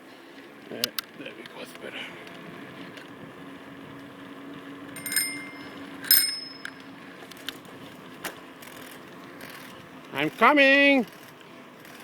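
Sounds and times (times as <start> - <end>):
bicycle bell ringing: 5.0 - 6.9.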